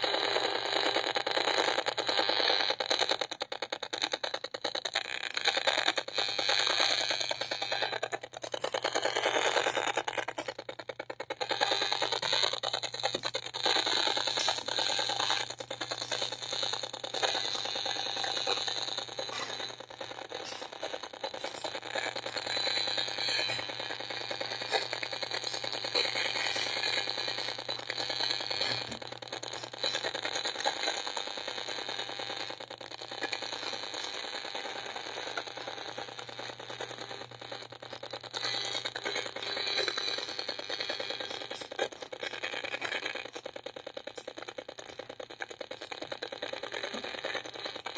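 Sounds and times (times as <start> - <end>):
rapid crackling clicks from meter speaker: 0.0 - 47.9.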